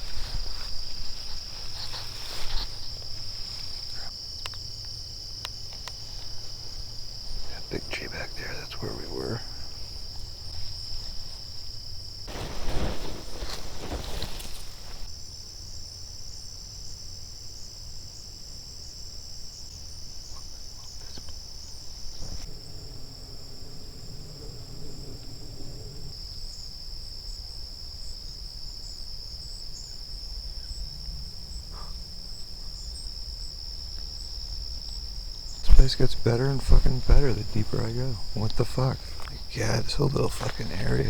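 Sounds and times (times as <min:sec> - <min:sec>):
high-pitched insect chorus: 0:00.0 - 0:41.0.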